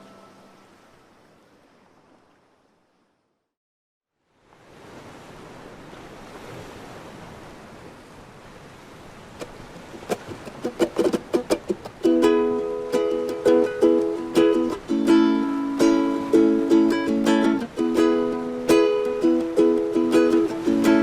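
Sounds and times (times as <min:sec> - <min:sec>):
ocean waves breaking: 0:04.4 - 0:21.0
plucked ukulele notes: 0:09.4 - 0:21.0.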